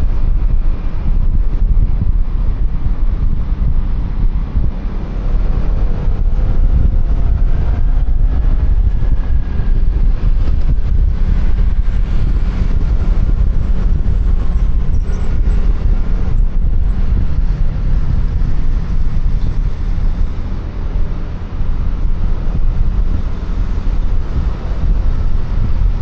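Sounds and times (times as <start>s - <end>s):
road noise: 0.0s - 26.0s
scooter engine running: 0.0s - 26.0s
wind buffeting microphone: 0.0s - 26.0s.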